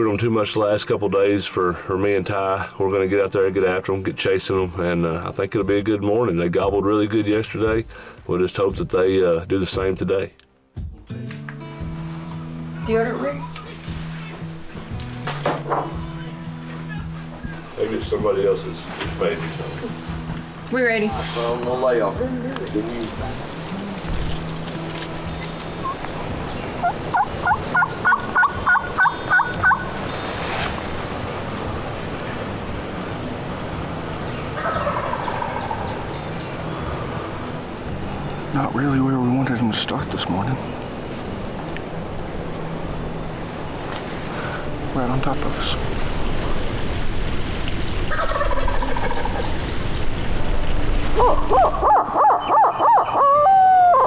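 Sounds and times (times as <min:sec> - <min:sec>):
loud evenly spaced calls: 0:11.6 - 0:17.8, 0:23.3 - 0:38.6, 0:51.2 - 0:54.0
wind rumbling on microphone: 0:16.9 - 0:38.4, 0:40.0 - 0:54.0
wild turkey gobbling: 0:25.4 - 0:30.1, 0:34.1 - 0:36.7, 0:48.1 - 0:49.7, 0:51.2 - 0:54.0.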